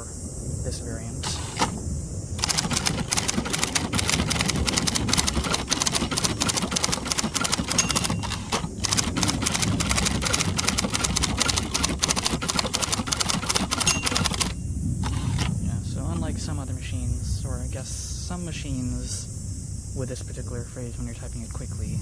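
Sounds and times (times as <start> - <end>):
manual typewriter typing: 1.2 - 1.8, 2.4 - 16.3.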